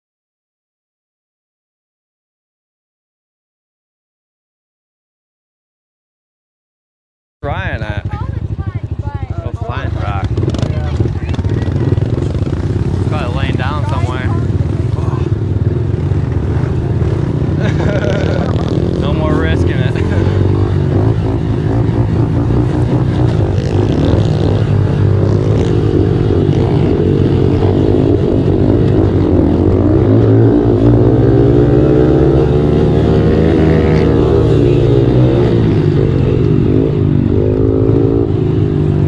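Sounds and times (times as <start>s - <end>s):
small motorcycle engine revving: 9.5s - 39.0s.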